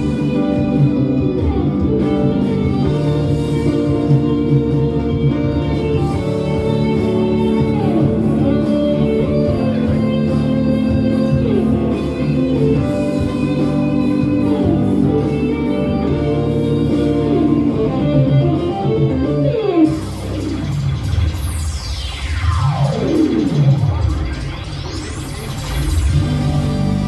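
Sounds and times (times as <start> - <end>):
guitar with sliding bends: 0.0 - 21.2
steady bass: 0.0 - 27.0.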